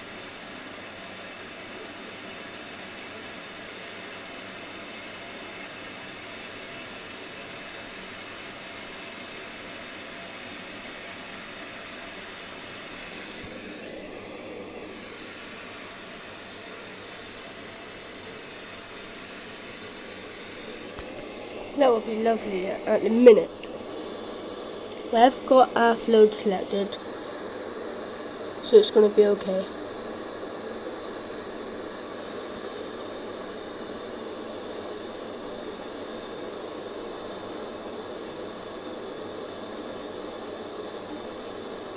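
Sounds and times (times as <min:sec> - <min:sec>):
water running into washing machine: 0:00.0 - 0:25.4.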